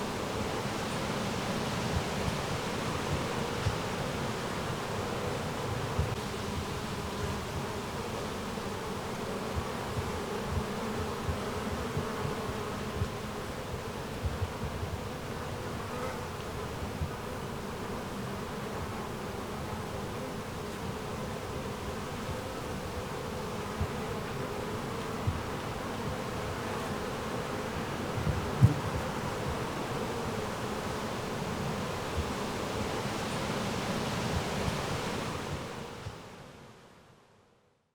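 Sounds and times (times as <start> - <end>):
insects buzzing: 0.0 - 36.2
wind buffeting microphone: 27.9 - 29.8.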